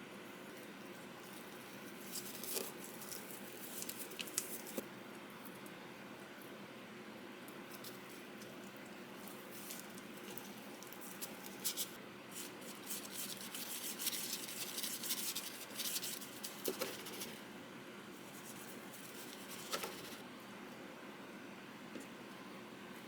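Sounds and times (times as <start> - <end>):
scratching and rustling with clicks: 0.6 - 4.8, 7.7 - 17.4, 18.3 - 20.2.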